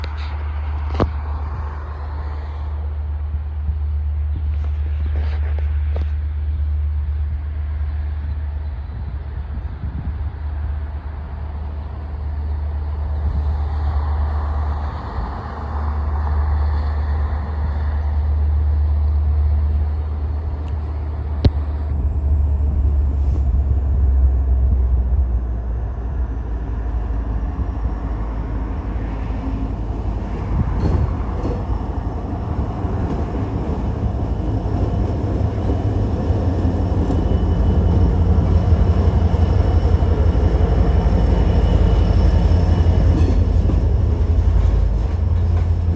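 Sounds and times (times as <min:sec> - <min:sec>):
diesel locomotive rumble: 0:00.0 - 0:45.9.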